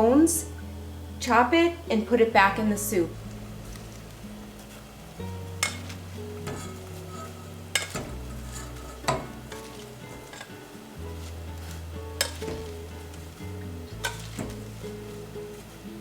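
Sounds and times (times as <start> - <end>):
background music: 0.0 - 16.0
faint stove hiss: 0.0 - 16.0
utensils clinking on cookware: 5.6 - 16.0.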